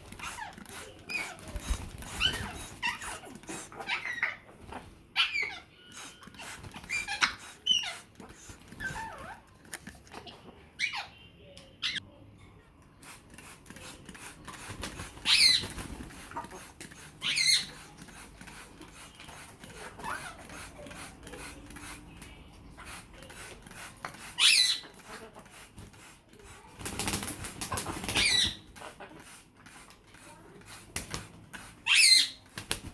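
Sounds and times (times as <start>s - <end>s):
parrots squawking and whistling: 0.1s - 9.4s, 10.3s - 11.2s, 15.2s - 18.2s, 24.2s - 25.4s, 28.1s - 29.2s, 31.8s - 32.4s.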